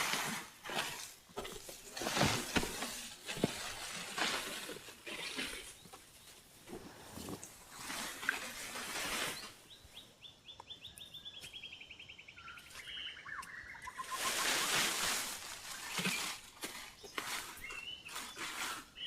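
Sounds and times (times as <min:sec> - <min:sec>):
rustling noise: 0:00.0 - 0:09.7, 0:13.9 - 0:19.0.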